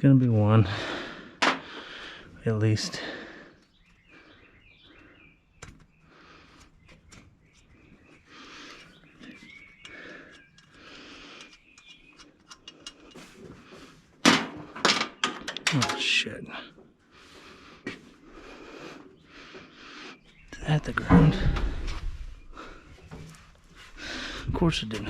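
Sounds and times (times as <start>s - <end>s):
faint bird chirps: 3.5s - 13.0s
tools clicking on metal: 9.8s - 13.2s.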